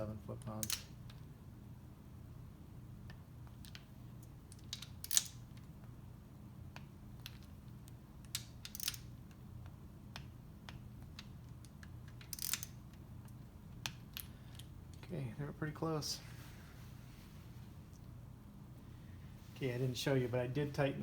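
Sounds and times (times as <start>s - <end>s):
low steady hum: 0.0s - 21.0s
torque wrench clicks: 12.2s - 12.7s.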